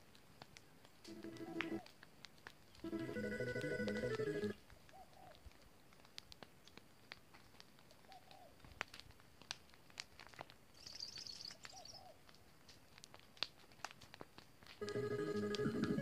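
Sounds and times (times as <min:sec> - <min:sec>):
faint bird calls: 0:04.8 - 0:05.5, 0:08.0 - 0:08.6, 0:10.8 - 0:12.2.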